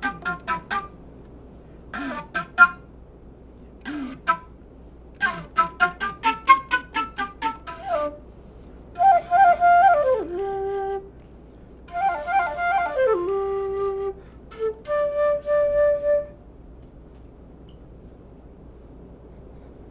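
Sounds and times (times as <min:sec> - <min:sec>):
flute playing: 0:00.0 - 0:01.0, 0:02.0 - 0:02.9, 0:03.9 - 0:04.6, 0:05.2 - 0:08.4, 0:09.0 - 0:11.2, 0:11.9 - 0:16.5.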